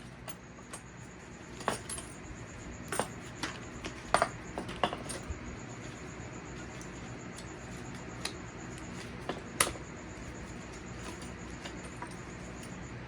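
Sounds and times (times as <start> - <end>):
light metallic clinks and taps: 0.0 - 2.2, 2.8 - 12.9.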